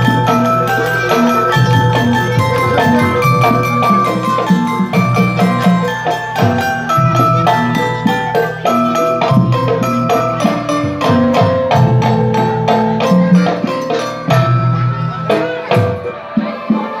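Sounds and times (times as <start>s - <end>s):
drumming: 0.0s - 17.0s
mallet-struck pitched percussion: 0.0s - 17.0s.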